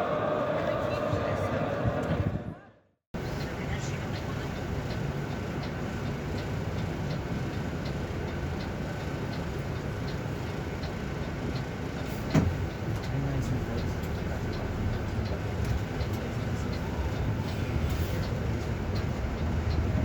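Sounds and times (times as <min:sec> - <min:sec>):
vehicle running hum: 0:03.2 - 0:20.0
faint ticks: 0:04.1 - 0:19.9.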